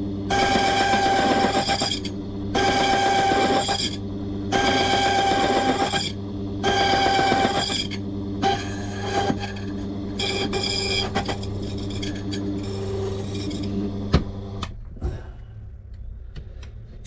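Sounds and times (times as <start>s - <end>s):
machine motor hum: 0.0s - 15.0s
key-cutting machine whining cut: 0.3s - 14.0s.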